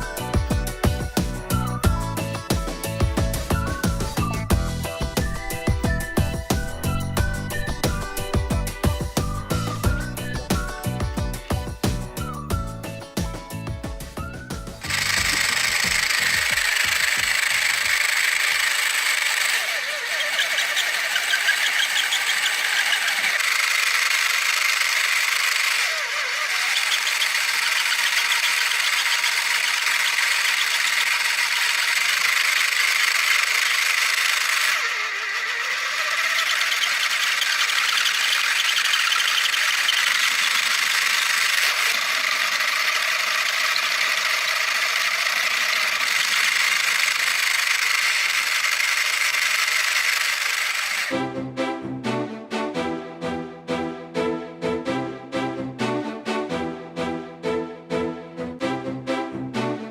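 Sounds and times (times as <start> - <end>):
gears whirring and rattling: 14.2 - 51.2.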